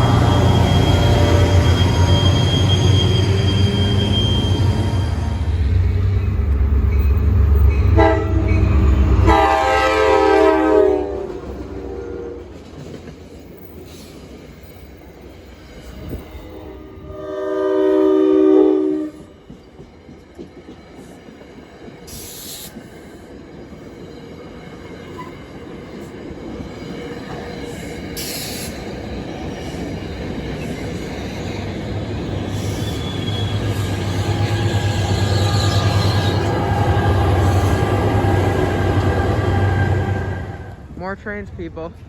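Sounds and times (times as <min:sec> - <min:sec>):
train horn: 0:00.0 - 0:05.3, 0:07.8 - 0:12.5, 0:16.1 - 0:19.4, 0:33.0 - 0:40.8
high wheel squeal: 0:00.0 - 0:08.8, 0:30.7 - 0:40.4
train rumbling on track: 0:00.0 - 0:42.0.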